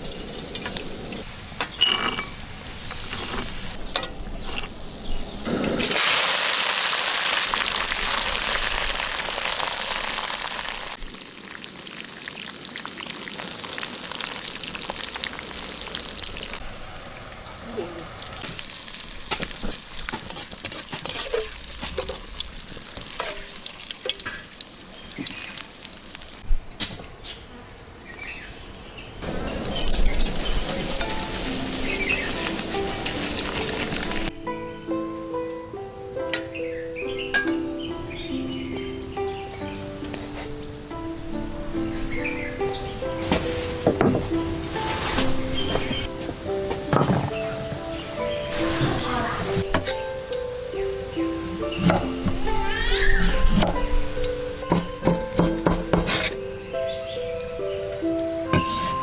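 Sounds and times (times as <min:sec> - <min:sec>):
food sizzling in hot oil: 0:05.8 - 0:17.6, 0:18.2 - 0:26.4, 0:29.3 - 0:34.3.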